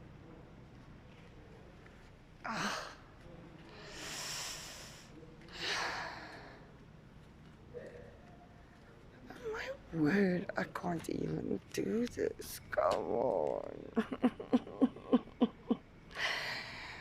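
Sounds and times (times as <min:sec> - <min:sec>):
woman sighing breaths: 0:16.1 - 0:17.0.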